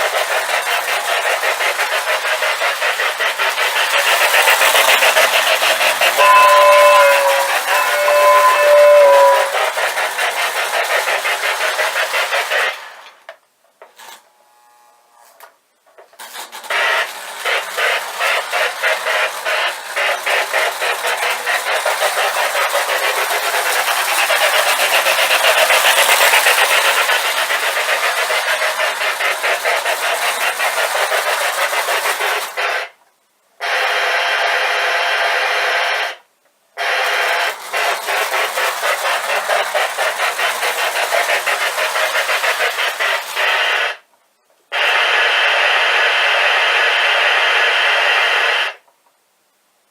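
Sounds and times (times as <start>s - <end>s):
model steam locomotive chuffing: 0.0s - 13.3s, 16.2s - 33.0s, 36.8s - 44.1s, 44.8s - 48.7s
two-tone steam whistle: 4.2s - 10.0s.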